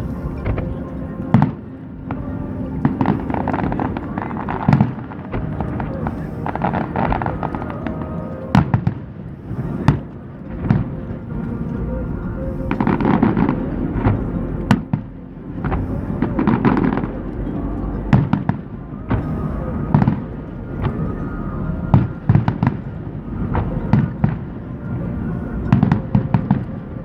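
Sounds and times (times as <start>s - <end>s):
fireworks crackling: 0.0s - 27.0s
low rumble: 0.0s - 27.0s.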